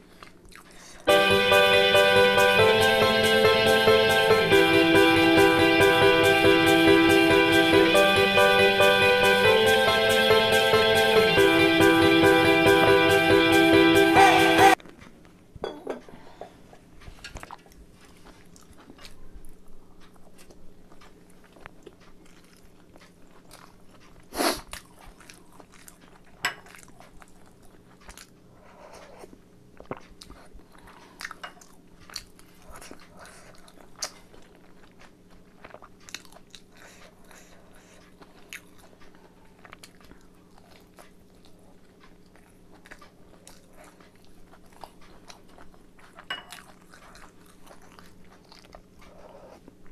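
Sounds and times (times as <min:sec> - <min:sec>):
chewing and biting food: 0:00.0 - 0:01.0, 0:16.9 - 0:49.9.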